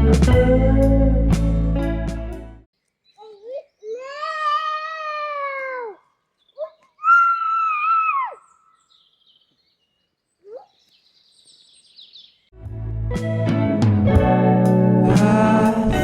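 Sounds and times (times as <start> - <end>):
animal crying: 3.9 - 8.8
faint bird twittering: 6.4 - 12.5.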